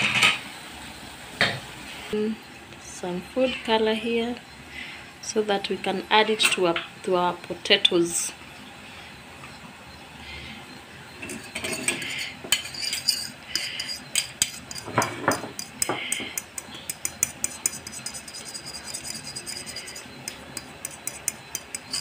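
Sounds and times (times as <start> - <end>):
spoon clinking and scraping a dish: 11.2 - 22.0.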